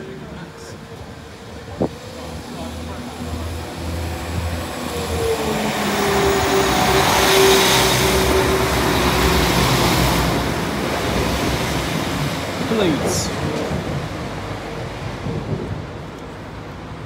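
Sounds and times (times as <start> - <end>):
train engine and wheels passing: 0.0 - 17.0.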